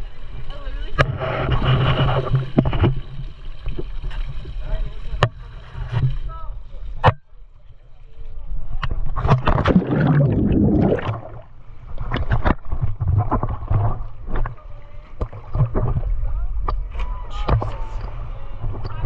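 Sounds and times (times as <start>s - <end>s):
water slapping against boat hull: 8.8s - 19.0s
loud splash: 9.3s - 11.5s.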